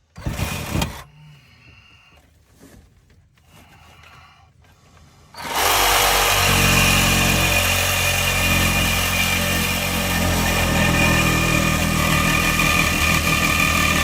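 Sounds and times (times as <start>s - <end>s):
power tool motor running: 5.4s - 14.0s.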